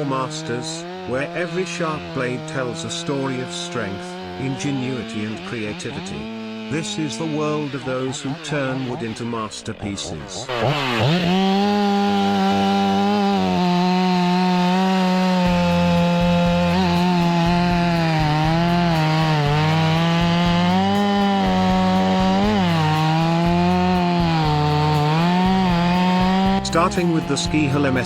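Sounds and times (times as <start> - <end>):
chainsaw cutting wood: 0.0 - 9.7, 10.3 - 28.0.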